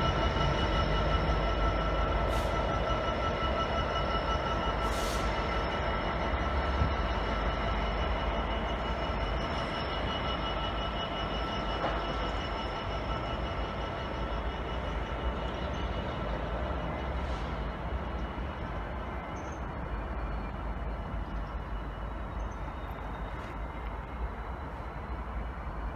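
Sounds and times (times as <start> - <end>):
train rumbling: 0.0 - 25.9.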